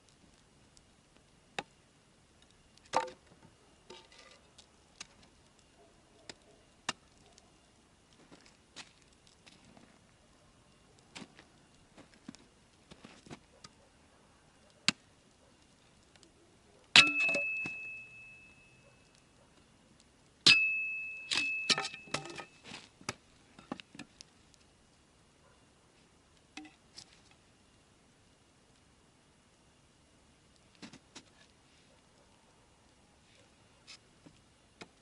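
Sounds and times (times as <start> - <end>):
metal object struck ringing: 17.0 - 18.7, 20.5 - 22.1.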